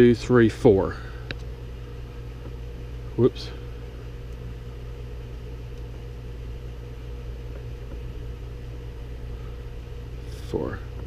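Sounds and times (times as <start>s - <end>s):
faint steady whine: 0.0s - 11.0s
low background hum: 0.0s - 11.0s.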